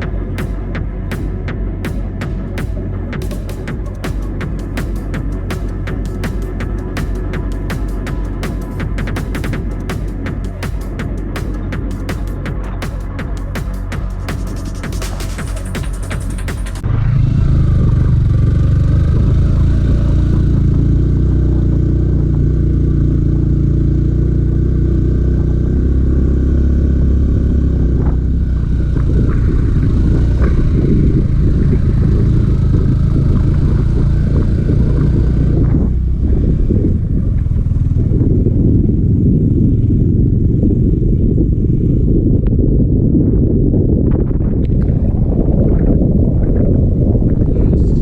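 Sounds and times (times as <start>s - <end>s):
motorcycle engine running: 0.0s - 48.0s
wind rumbling on microphone: 0.0s - 48.0s.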